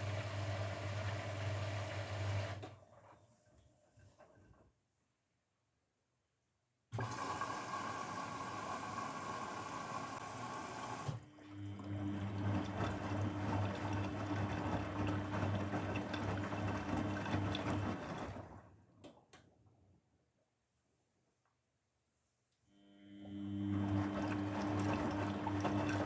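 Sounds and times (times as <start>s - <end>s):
water rushing in washing machine: 0.0s - 4.7s, 7.0s - 19.9s, 23.0s - 26.0s
pump humming: 7.0s - 18.0s, 23.0s - 26.0s.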